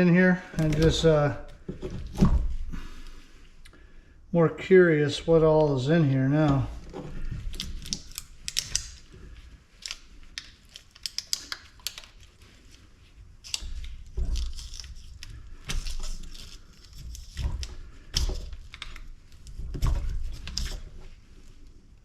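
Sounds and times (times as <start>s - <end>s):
tearing at rubbery compound: 6.4s - 21.9s.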